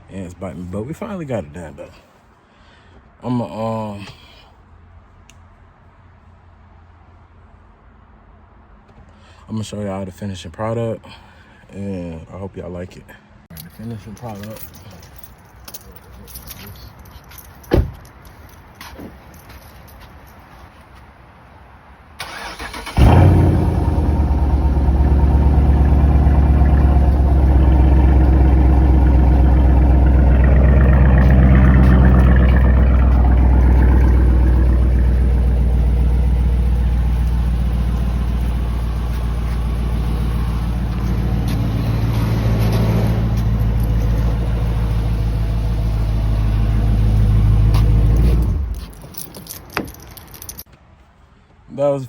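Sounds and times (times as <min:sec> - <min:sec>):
car engine starting and running: 0:22.2 - 0:50.7.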